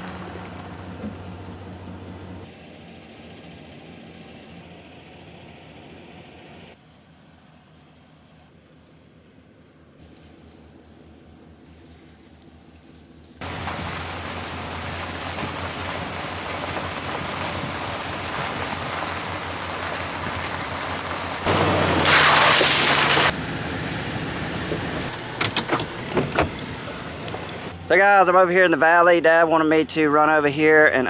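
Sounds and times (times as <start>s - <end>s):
truck engine and road noise: 0.0s - 31.0s.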